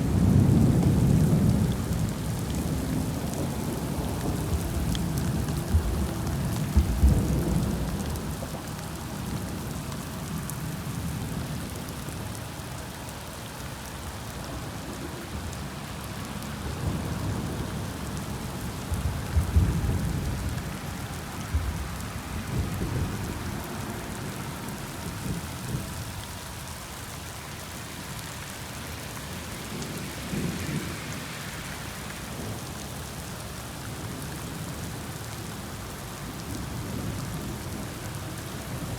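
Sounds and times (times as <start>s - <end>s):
low rumbles of thunder: 0.0s - 12.1s, 14.4s - 26.7s
heavy rain falling: 0.0s - 38.9s.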